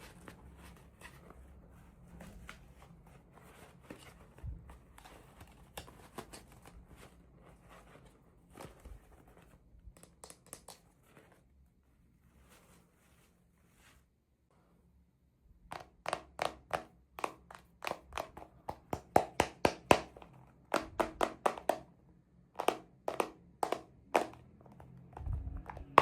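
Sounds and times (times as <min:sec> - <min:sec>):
small clicks and taps: 0:09.9 - 0:10.9.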